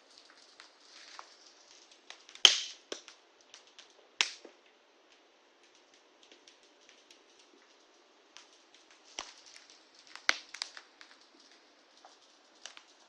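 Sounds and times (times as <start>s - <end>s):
wood fire crackling: 0.0s - 13.0s
loud sharp cracks: 2.1s - 3.2s, 4.2s - 4.5s.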